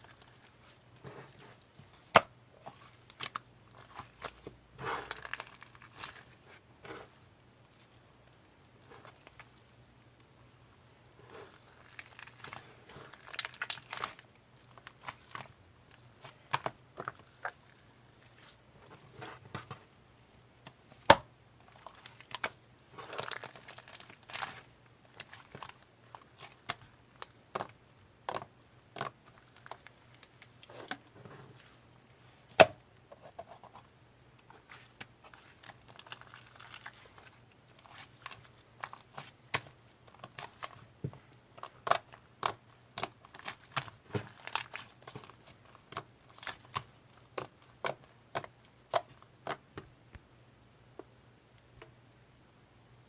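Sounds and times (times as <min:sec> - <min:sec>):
thin material crinkling and tearing: 0:00.0 - 0:07.0, 0:11.2 - 0:19.4, 0:20.9 - 0:32.6, 0:34.4 - 0:40.9, 0:41.6 - 0:49.6.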